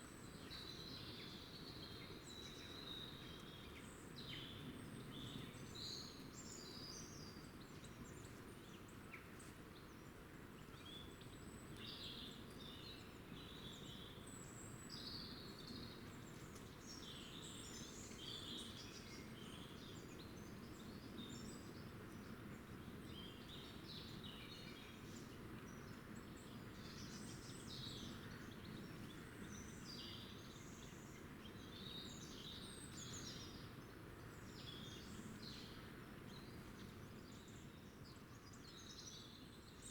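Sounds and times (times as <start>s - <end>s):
low background noise: 0.0s - 39.9s.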